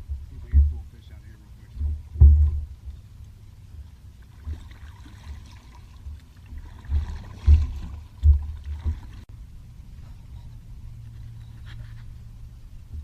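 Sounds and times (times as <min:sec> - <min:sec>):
faint water sounds: 0:00.0 - 0:13.0
dull knocks against kayak hull: 0:01.8 - 0:02.7, 0:06.9 - 0:09.2.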